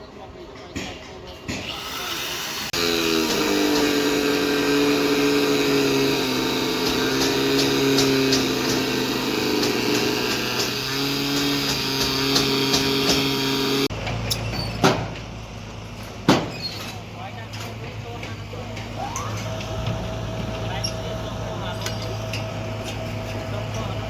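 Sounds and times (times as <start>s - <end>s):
excavator engine running: 2.6s - 14.3s, 17.0s - 24.0s.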